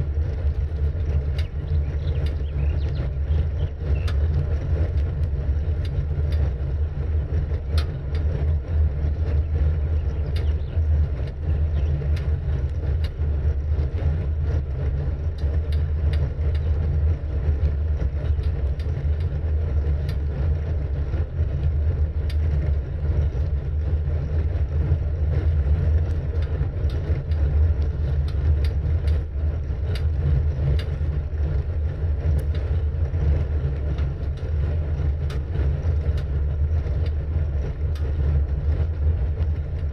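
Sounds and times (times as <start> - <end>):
bike rumble: 0.0 - 39.9
wind on microphone: 0.0 - 39.9
faint clicks: 10.0 - 10.8.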